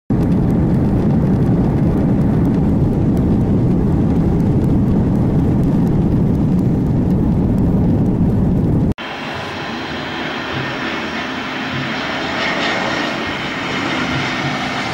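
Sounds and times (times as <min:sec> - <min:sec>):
jet engines rumbling: 0:00.1 - 0:14.9.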